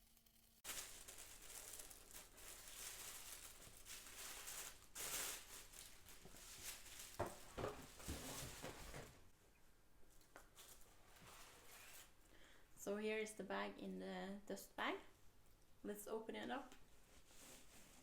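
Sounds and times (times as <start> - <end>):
paper and packaging rustling: 0.6 - 9.3, 10.1 - 12.2.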